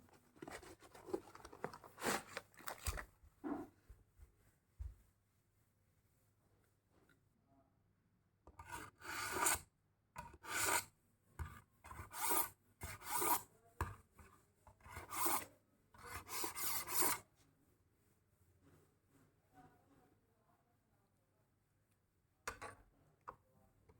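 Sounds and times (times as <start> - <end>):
knife rasping through sharpener: 8.6 - 9.6, 10.3 - 10.9, 11.9 - 13.4, 14.8 - 17.2.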